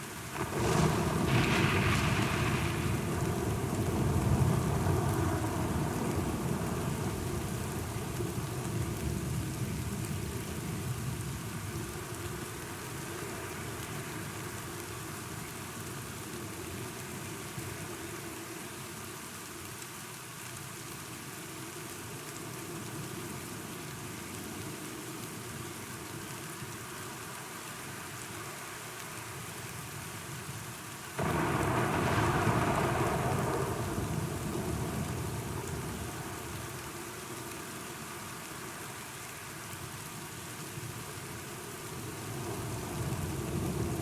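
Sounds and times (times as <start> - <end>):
rain falling: 0.0 - 44.0
low thunder rumble: 0.4 - 11.8, 31.2 - 36.9.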